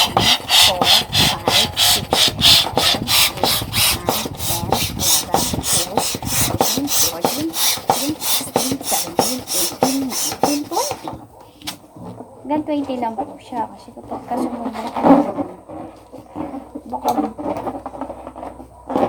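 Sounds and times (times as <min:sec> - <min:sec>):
hand pump rasping air: 0:00.0 - 0:11.2.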